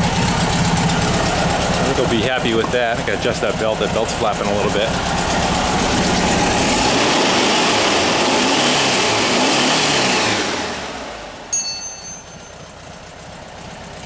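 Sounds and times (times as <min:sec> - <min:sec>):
engine revving and idling: 0:00.0 - 0:11.5
sharp metallic clink: 0:11.5 - 0:12.9.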